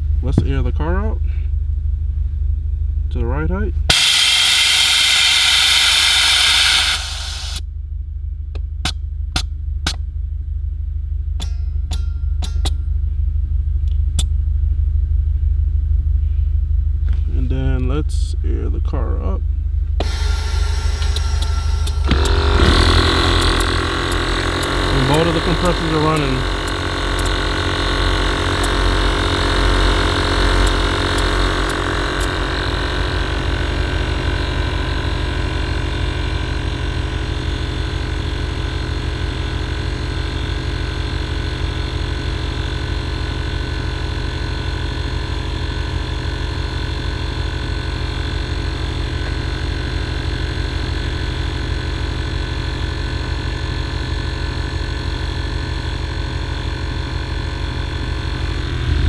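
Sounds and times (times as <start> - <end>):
air compressors humming: 0.0 - 1.3, 3.9 - 7.6, 20.0 - 38.9, 57.6 - 59.0.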